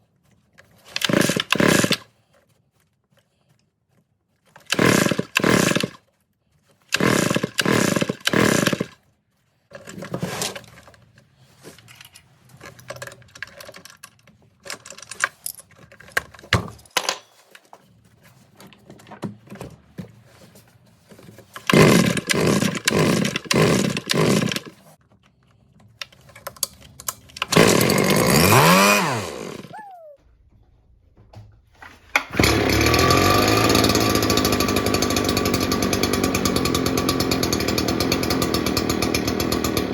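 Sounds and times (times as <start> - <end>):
clicks and handling sounds: 0.0 - 4.8, 8.1 - 27.6
two-stroke engine firing in bursts: 1.0 - 2.0, 4.7 - 6.0, 7.0 - 8.9, 21.7 - 24.7, 27.5 - 29.7, 32.3 - 39.9.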